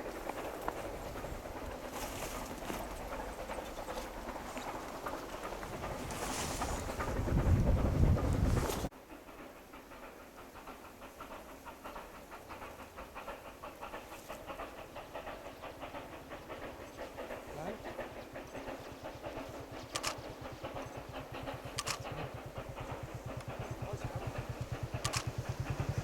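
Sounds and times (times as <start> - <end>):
steam locomotive exhaust chuffing: 0.0 - 26.0
low fast pulsing: 0.7 - 8.9, 10.1 - 26.0
sharp click: 20.0 - 20.2, 21.8 - 22.1, 25.0 - 25.3.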